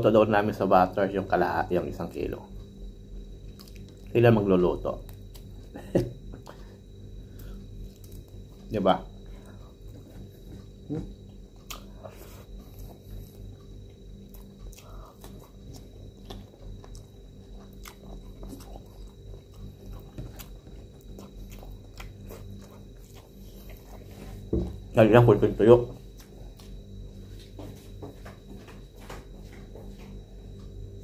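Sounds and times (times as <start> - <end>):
person chewing: 3.5 - 4.1, 9.4 - 24.5, 26.1 - 26.9.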